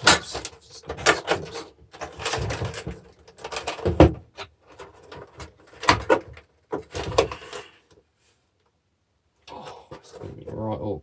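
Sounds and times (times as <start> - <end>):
metal and plastic parts rattling: 0.0 - 7.7.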